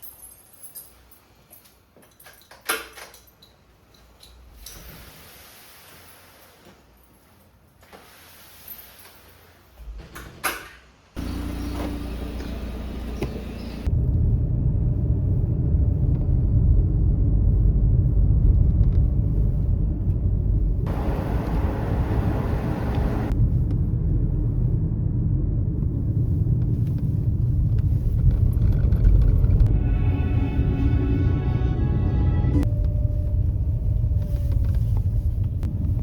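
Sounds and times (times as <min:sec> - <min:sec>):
car driving on road: 0:11.2 - 0:29.9.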